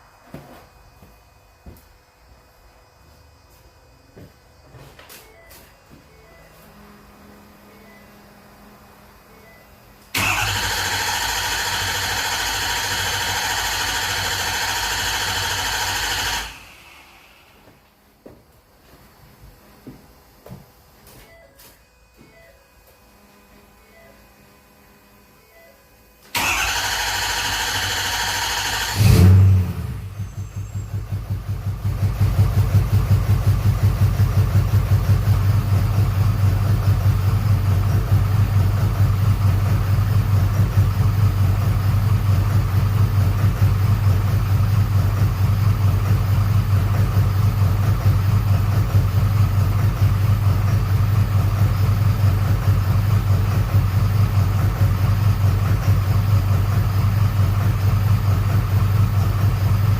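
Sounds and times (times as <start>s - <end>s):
diesel engine cranking on starter: 10.1s - 17.5s, 26.3s - 59.9s
diesel engine idling: 26.4s - 59.9s.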